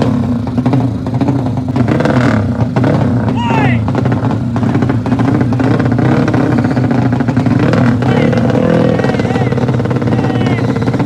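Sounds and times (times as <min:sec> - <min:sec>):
motorcycle engines running: 0:00.0 - 0:11.0
people calling out: 0:03.3 - 0:03.9, 0:07.9 - 0:11.0.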